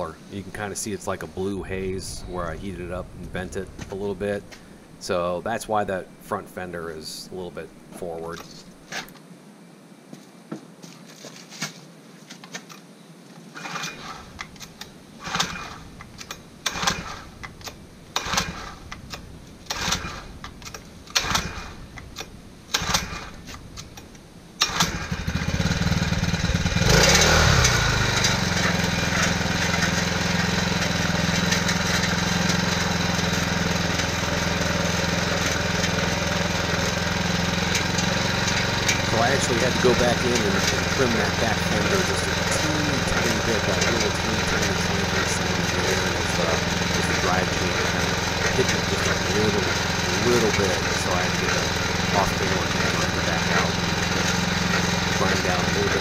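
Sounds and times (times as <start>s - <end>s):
small engine starting and idling: 13.5s - 24.0s, 24.6s - 56.0s.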